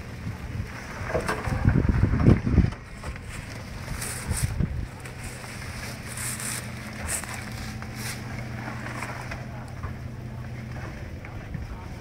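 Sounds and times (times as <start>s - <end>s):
off-road vehicle engine droning: 0.0s - 12.0s
grass swishing against vehicle: 2.8s - 9.9s.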